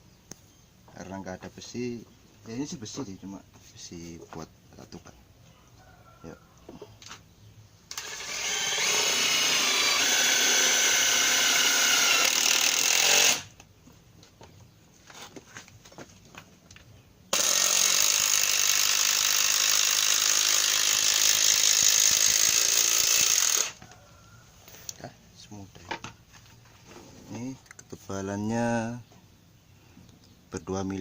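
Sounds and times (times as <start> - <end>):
impact driver drilling into steel: 7.9 - 13.5, 17.3 - 23.8.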